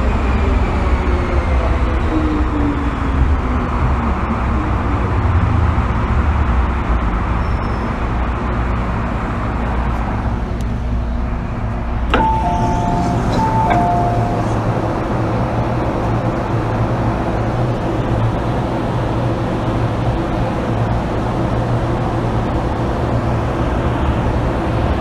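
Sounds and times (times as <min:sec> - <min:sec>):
train rolling rumble: 0:00.0 - 0:25.0
train motor whine: 0:11.9 - 0:15.1
click: 0:12.1 - 0:14.6
two-note descending chime: 0:12.1 - 0:15.0.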